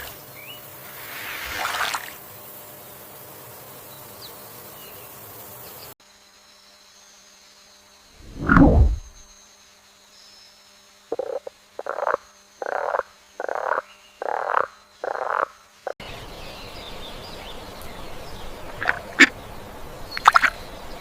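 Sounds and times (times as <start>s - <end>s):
animal croaking calls: 11.1s - 15.5s.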